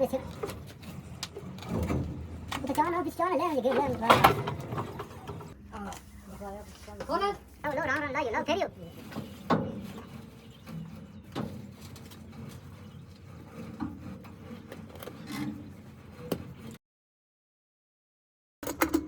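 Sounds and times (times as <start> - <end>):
knocks and scrapes of hand work: 0.0 - 5.6, 8.8 - 16.8.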